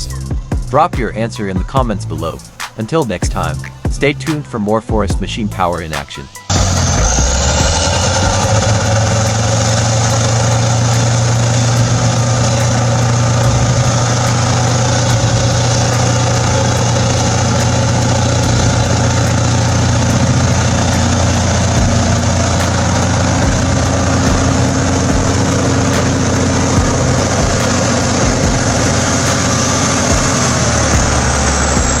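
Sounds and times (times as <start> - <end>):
heavy machine engine running: 6.5 - 32.0.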